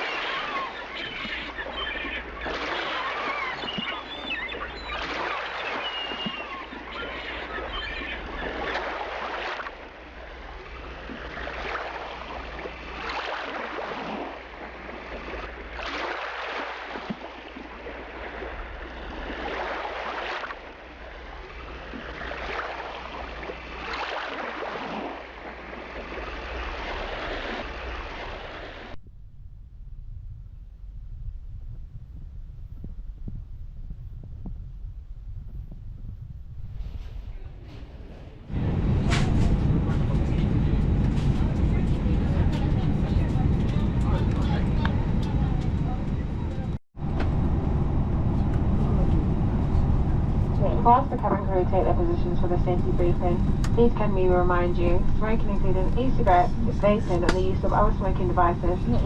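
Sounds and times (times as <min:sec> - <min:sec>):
birds chirping: 0:00.0 - 0:09.2
water rushing and splashing: 0:00.0 - 0:29.0.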